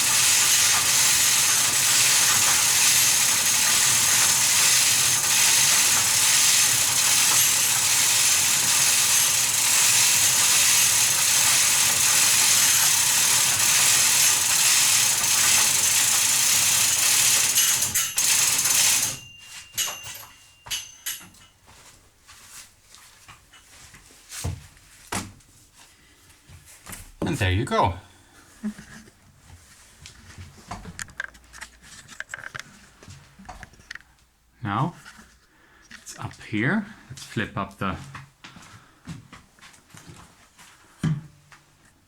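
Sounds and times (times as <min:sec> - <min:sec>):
mechanical clicks and rattles: 0:00.0 - 0:21.3, 0:31.0 - 0:32.7.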